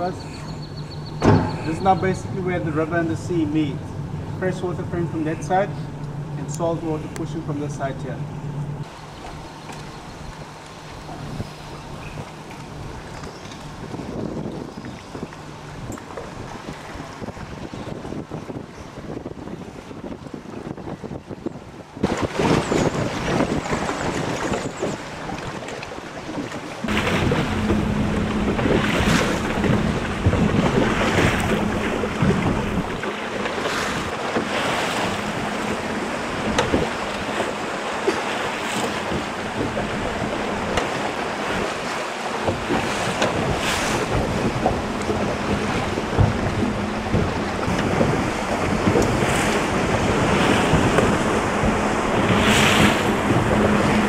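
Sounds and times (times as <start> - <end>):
wind buffeting microphone: 0.0 - 54.0
sea waves washing against rocks: 22.0 - 54.0
low steady hum: 26.8 - 34.2.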